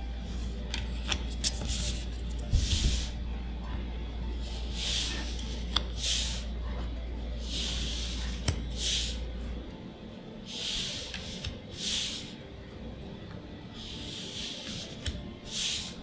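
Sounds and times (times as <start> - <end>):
low background hum: 0.0 - 16.0
cards swishing against each other: 0.3 - 3.3, 4.4 - 9.3, 10.5 - 12.4, 13.8 - 16.0
card edges clicking: 0.6 - 2.8.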